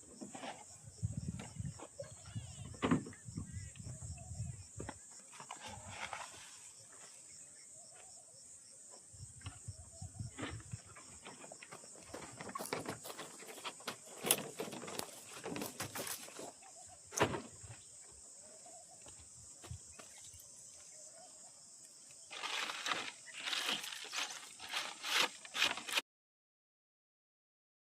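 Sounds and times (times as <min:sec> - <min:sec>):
high-pitched insect chorus: 0:00.0 - 0:25.8
rustling: 0:22.3 - 0:26.0.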